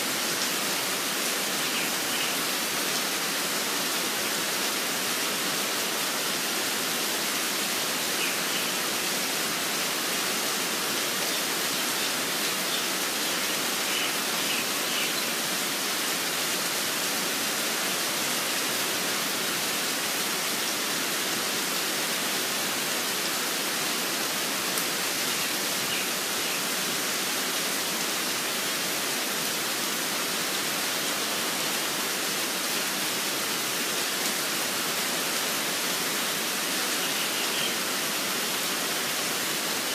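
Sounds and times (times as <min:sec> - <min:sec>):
steady rainfall: 0:00.0 - 0:39.9
faint bird chirps: 0:12.7 - 0:15.4, 0:36.9 - 0:37.8.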